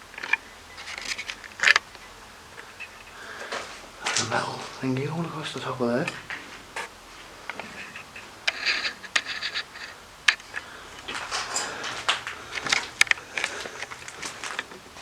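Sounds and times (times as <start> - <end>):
sharp clicks: 0.0 - 4.9, 6.0 - 14.8
scrapes: 6.1 - 15.0
footsteps scuffing on gritty floor: 10.6 - 15.0.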